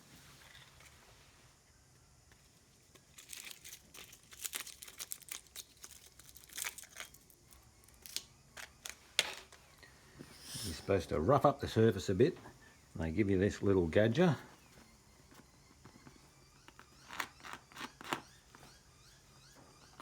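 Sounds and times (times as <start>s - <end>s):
plastic packaging crinkling: 2.9s - 9.7s.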